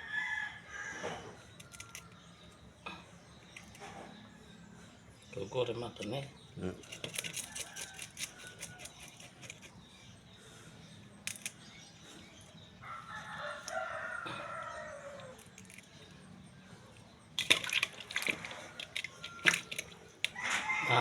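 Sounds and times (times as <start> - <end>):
rooster crowing: 0.0 - 1.4, 12.8 - 15.4, 20.3 - 21.0.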